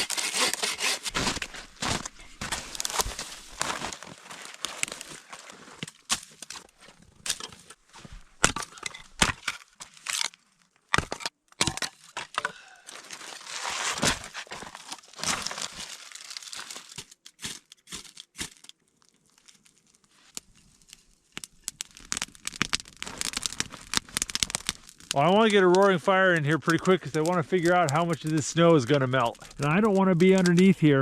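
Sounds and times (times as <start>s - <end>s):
dry twigs snapping: 1.2s - 6.7s, 14.2s - 25.9s.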